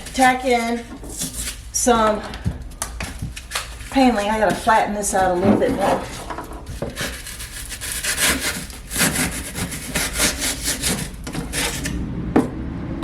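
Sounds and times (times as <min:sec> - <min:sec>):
hand saw cutting foam: 0:06.8 - 0:12.0.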